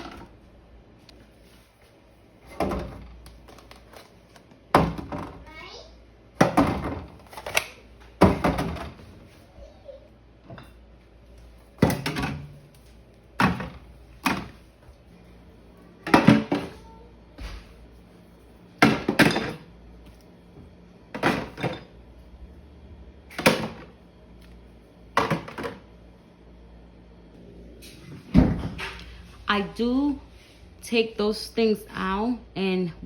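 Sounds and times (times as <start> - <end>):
containers clunking on fridge shelves: 0.0 - 0.4, 2.4 - 5.5, 6.3 - 9.2, 11.7 - 14.7, 16.0 - 17.6, 18.8 - 19.8, 20.6 - 22.0, 23.3 - 24.0, 25.1 - 26.0.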